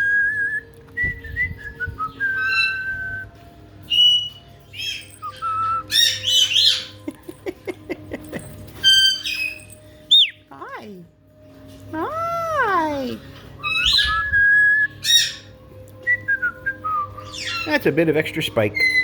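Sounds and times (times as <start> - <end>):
parrot whistling: 0.0 - 3.2, 3.9 - 7.0, 8.8 - 10.4, 13.6 - 15.5, 18.8 - 19.0
parrot squawking: 5.9 - 7.0, 8.8 - 10.4, 13.6 - 14.3, 15.0 - 15.5, 17.2 - 18.0.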